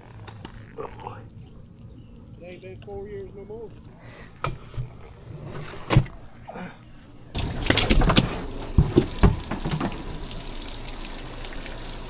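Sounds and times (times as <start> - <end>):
water splashing and sloshing: 7.3 - 12.0.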